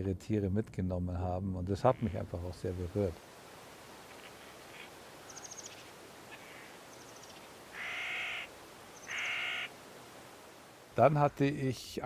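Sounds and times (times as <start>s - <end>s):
outdoor background hiss: 0.0s - 12.0s
bird drawn-out calls: 4.1s - 9.8s
small bird high quick chirps: 4.7s - 9.7s.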